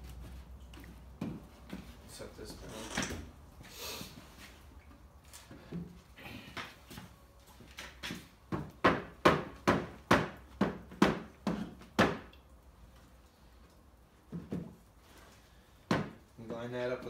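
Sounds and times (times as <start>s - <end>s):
hammer striking wood: 8.5s - 12.3s, 15.9s - 16.2s.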